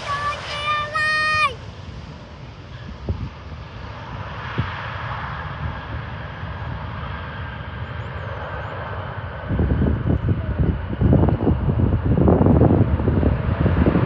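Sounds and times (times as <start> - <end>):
jet engines roaring: 0.0 - 14.0
wind buffeting microphone: 0.0 - 14.0.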